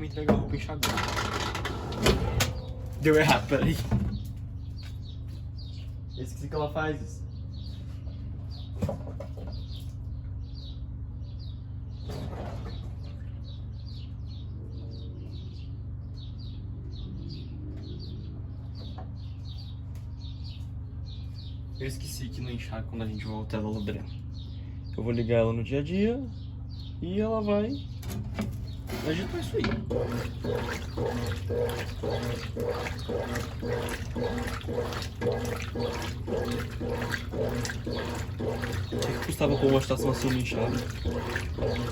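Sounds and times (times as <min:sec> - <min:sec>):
washing machine humming: 0:00.0 - 0:05.0, 0:27.9 - 0:41.9
water sloshing: 0:28.0 - 0:41.9.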